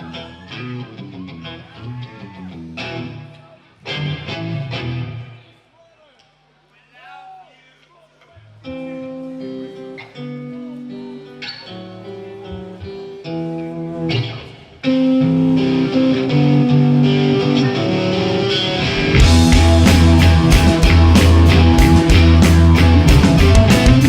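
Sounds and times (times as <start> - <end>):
picked electric guitar melody: 3.9 - 5.3, 8.6 - 24.0
rock band playing: 8.8 - 24.0.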